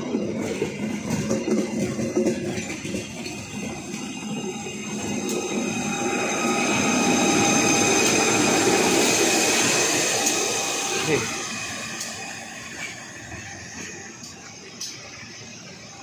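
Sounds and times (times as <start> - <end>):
train wheels knocking over rail joints: 0.0 - 5.6
diesel locomotive rumble: 0.0 - 16.0
thin steady whine: 0.0 - 16.0.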